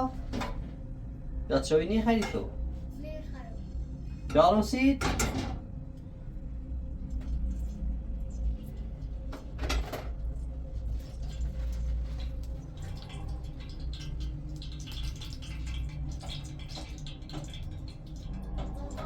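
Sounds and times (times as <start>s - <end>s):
steady low rumble: 5.6s - 11.8s.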